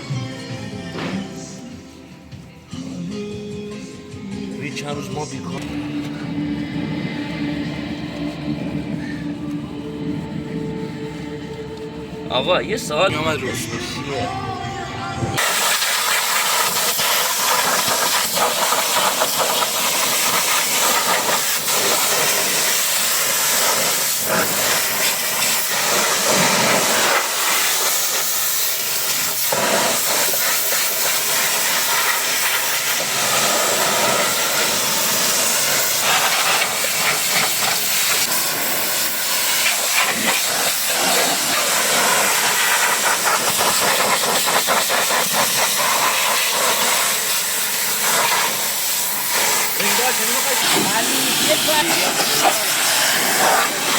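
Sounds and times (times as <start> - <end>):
pressure washer spraying water: 15.4 - 53.9.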